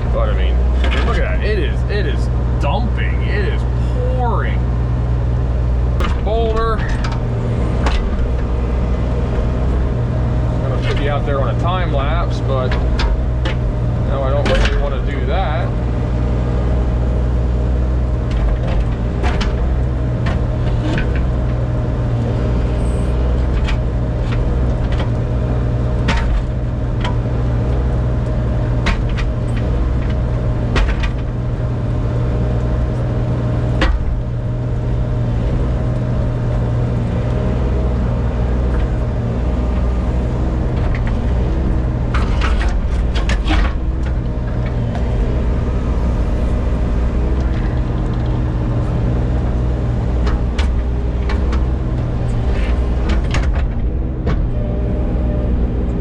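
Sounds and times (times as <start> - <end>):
excavator engine running: 0.0 - 56.0
metal clanks and knocks: 5.9 - 8.6, 26.0 - 28.0, 28.7 - 31.6, 33.6 - 37.6, 38.6 - 54.6.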